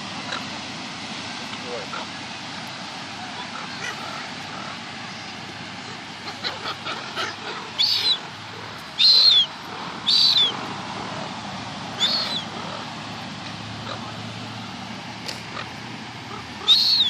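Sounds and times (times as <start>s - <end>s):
seagulls calling: 3.2s - 13.0s, 13.8s - 14.3s, 15.2s - 17.0s
loud seagull squawks: 5.9s - 8.3s, 9.0s - 10.6s, 12.0s - 12.8s, 16.3s - 17.0s.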